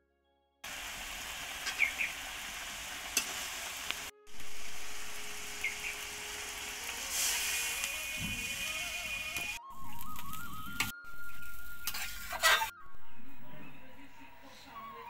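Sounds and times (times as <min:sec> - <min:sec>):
vegetables sizzling in oil: 0:00.6 - 0:12.7
water hissing in hot pan: 0:00.6 - 0:12.7
metal spatula scraping pan: 0:11.9 - 0:12.7.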